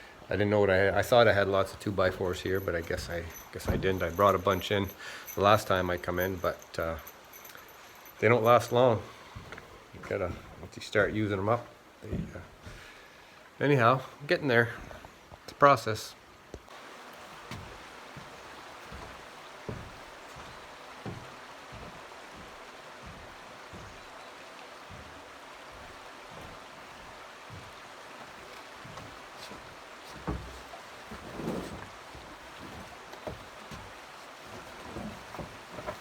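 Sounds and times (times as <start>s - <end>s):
fast-flowing river rushing: 16.7s - 36.0s.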